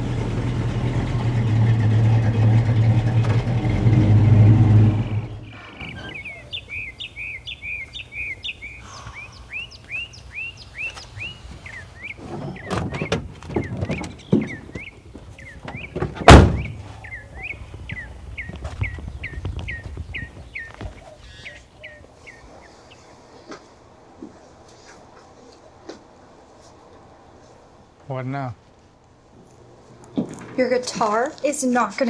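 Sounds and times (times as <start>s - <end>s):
dull thumps: 0.0s - 6.3s, 10.9s - 21.0s
bird chirping: 0.7s - 23.0s
loud sharp thump: 16.0s - 16.9s.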